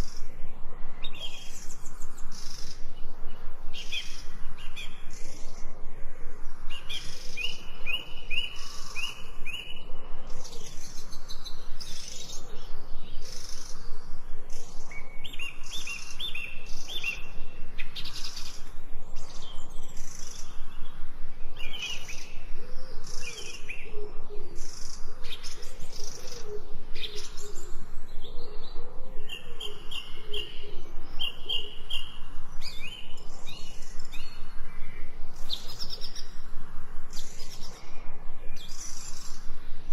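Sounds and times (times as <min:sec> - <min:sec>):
lower wavering bird calls: 0:00.0 - 0:39.9
birds chirping: 0:06.6 - 0:39.9.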